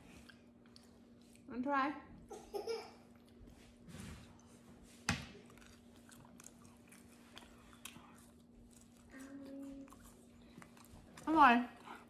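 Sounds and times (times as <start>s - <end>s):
person chewing crisp bread: 0.0s - 1.5s, 3.0s - 4.6s, 5.3s - 11.2s.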